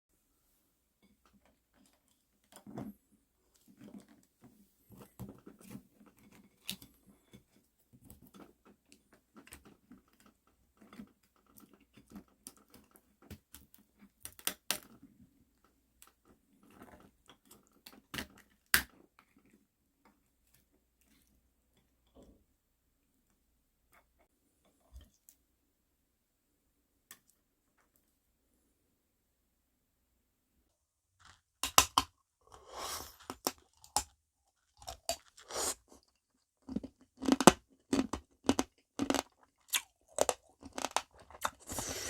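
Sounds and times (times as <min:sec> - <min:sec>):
crab shells cracking: 0:36.7 - 0:41.6.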